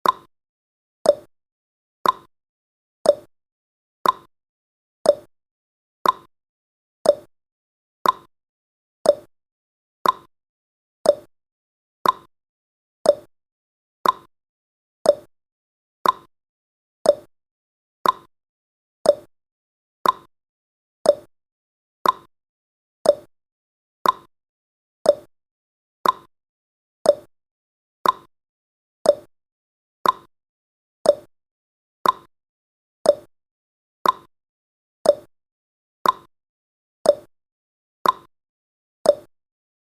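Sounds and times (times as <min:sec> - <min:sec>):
timer clicks: 0:00.0 - 0:00.3, 0:01.0 - 0:01.3, 0:02.0 - 0:02.3, 0:03.0 - 0:03.3, 0:04.0 - 0:04.3, 0:05.0 - 0:05.3, 0:06.0 - 0:06.3, 0:07.0 - 0:07.3, 0:08.0 - 0:08.3, 0:09.0 - 0:09.3, 0:10.0 - 0:10.3, 0:11.0 - 0:11.3, 0:12.0 - 0:12.3, 0:13.0 - 0:13.3, 0:14.0 - 0:14.3, 0:15.0 - 0:15.3, 0:16.0 - 0:16.3, 0:17.0 - 0:17.3, 0:18.0 - 0:18.3, 0:19.0 - 0:19.3, 0:20.0 - 0:20.3, 0:21.0 - 0:21.3, 0:22.0 - 0:22.3, 0:23.0 - 0:23.3, 0:24.0 - 0:24.3, 0:25.0 - 0:25.3, 0:26.0 - 0:26.3, 0:27.0 - 0:27.3, 0:28.0 - 0:28.3, 0:29.0 - 0:29.3, 0:30.0 - 0:30.3, 0:31.0 - 0:31.3, 0:32.0 - 0:32.3, 0:33.0 - 0:33.3, 0:34.0 - 0:34.3, 0:35.0 - 0:35.3, 0:36.0 - 0:36.3, 0:37.0 - 0:37.3, 0:38.0 - 0:38.3, 0:39.0 - 0:39.3.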